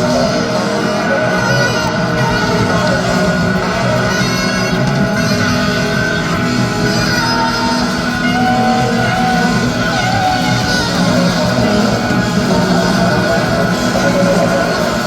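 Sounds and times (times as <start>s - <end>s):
electric guitar sustained gliding notes: 0.0s - 15.0s
live rock band playing: 0.0s - 15.0s.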